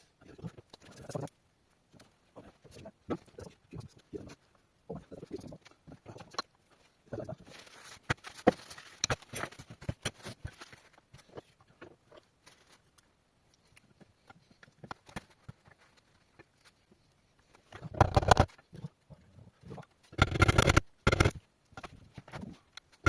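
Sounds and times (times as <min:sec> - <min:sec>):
metal parts and tools clicking: 0:20.1 - 0:21.4.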